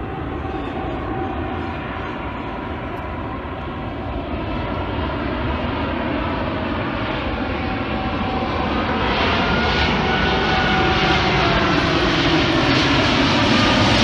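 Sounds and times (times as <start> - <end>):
engine drone with faint whine: 0.0 - 14.0.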